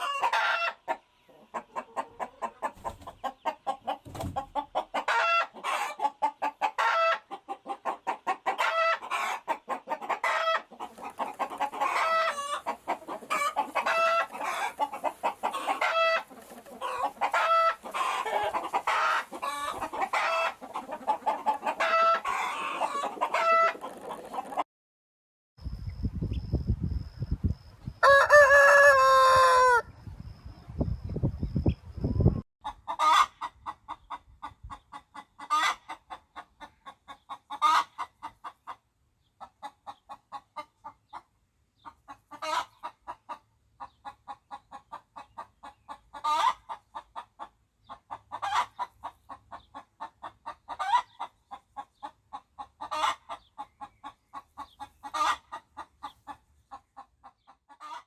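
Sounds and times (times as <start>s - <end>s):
chickens clucking: 0.0s - 24.6s, 30.6s - 58.0s
rooster crowing: 28.0s - 29.9s.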